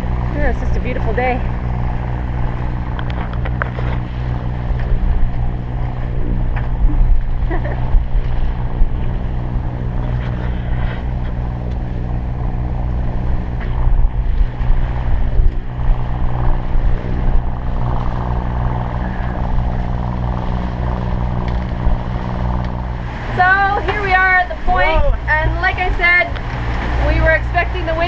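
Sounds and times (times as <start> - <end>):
boat engine low hum: 0.0 - 28.0
rush of wind and water: 0.0 - 28.0.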